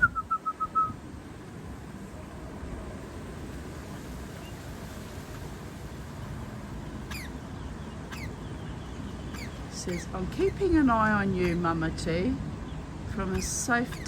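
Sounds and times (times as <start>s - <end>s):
low outdoor background rumble: 0.0s - 14.0s
high bird chirps: 7.1s - 10.8s, 13.2s - 14.0s.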